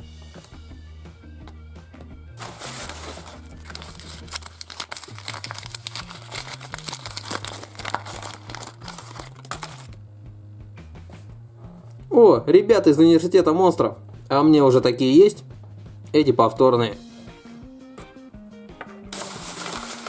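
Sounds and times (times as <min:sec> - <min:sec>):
background music: 0:00.0 - 0:20.0
wrapper crumpling and tearing: 0:02.4 - 0:10.0, 0:19.1 - 0:20.0.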